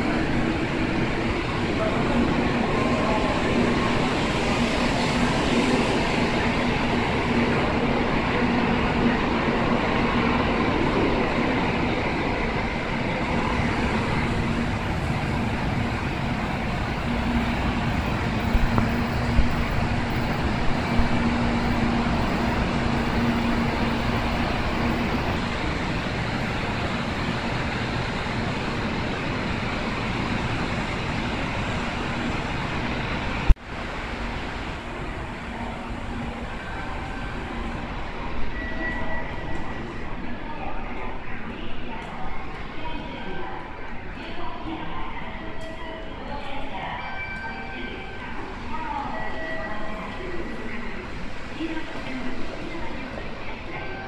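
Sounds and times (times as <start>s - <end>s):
train running noise with low hum: 0.0s - 54.0s.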